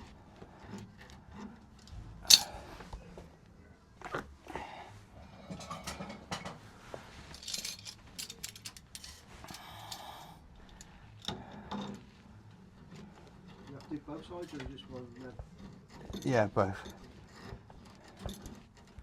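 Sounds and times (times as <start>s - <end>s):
hand tools clicking on metal: 1.8s - 2.7s, 7.3s - 19.0s.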